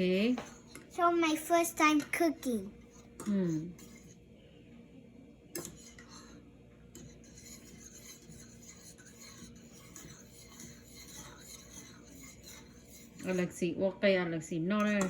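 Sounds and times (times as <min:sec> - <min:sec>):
utensil scraping a bowl: 0:00.0 - 0:04.2, 0:05.6 - 0:13.8, 0:14.8 - 0:15.0.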